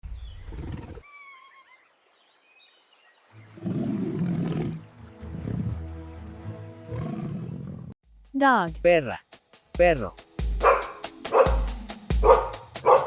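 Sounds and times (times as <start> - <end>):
animal roaring call: 3.5 - 5.8, 6.9 - 8.0.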